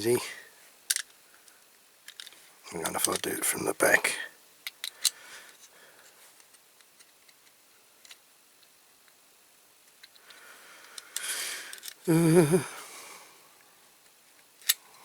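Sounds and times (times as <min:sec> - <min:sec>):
small metal parts clicking: 0:00.9 - 0:03.3, 0:09.9 - 0:12.1, 0:14.4 - 0:14.8.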